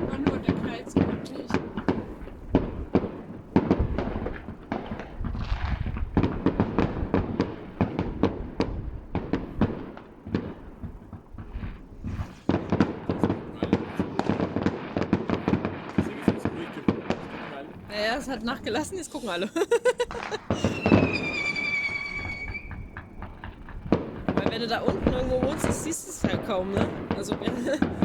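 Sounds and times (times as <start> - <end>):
fireworks crackling: 0.0 - 28.0
loud firework bangs: 0.0 - 28.0.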